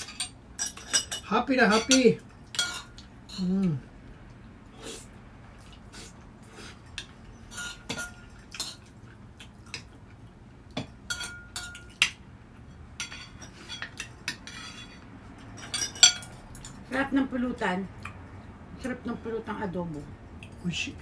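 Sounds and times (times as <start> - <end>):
utensils and dishes clinking: 0.0 - 3.6, 6.8 - 8.9, 10.8 - 16.9.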